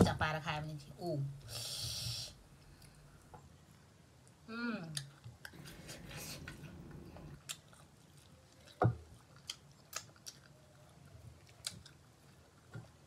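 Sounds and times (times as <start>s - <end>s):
person chewing: 5.0s - 13.0s
wet mouth clicks and smacks: 8.7s - 10.5s.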